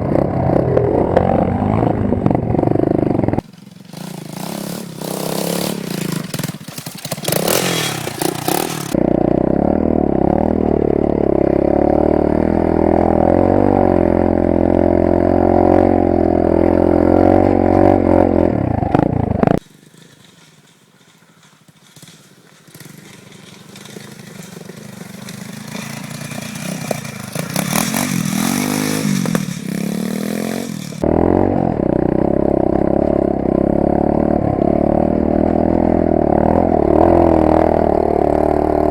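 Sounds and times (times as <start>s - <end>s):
rattling: 0.0s - 9.0s
engine climbing in pitch: 0.0s - 19.6s, 25.5s - 38.9s
motorbike engine running hard: 0.0s - 19.6s, 21.9s - 38.9s.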